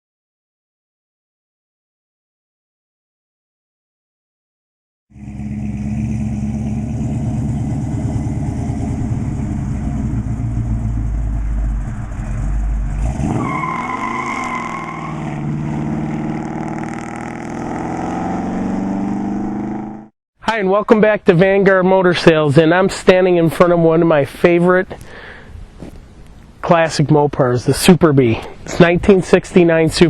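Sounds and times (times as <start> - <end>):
car engine deep rumble: 5.1 - 14.0.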